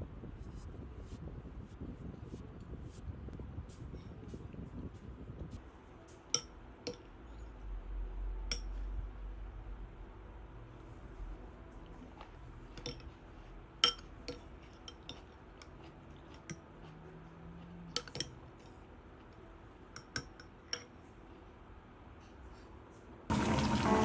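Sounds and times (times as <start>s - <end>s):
dishes and utensils clinking: 6.3s - 7.1s, 12.7s - 16.7s, 17.9s - 18.8s, 19.9s - 21.0s.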